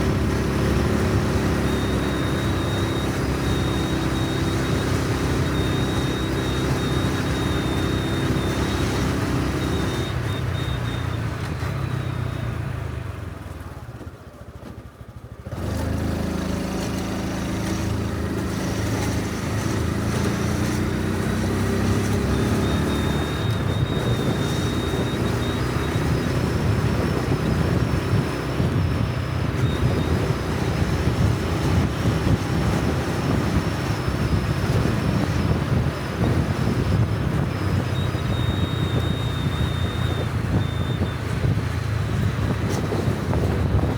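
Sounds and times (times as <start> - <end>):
motorcycle engine running: 0.0 - 43.9
wind rush on microphone: 18.0 - 43.9.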